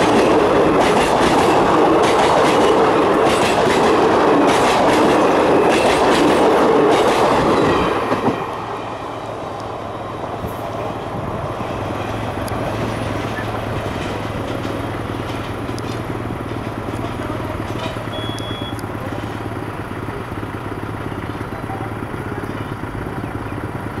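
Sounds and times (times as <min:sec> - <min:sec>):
train wheels clattering over joints: 0:00.0 - 0:08.6, 0:10.4 - 0:18.1
train rumble: 0:00.0 - 0:24.0.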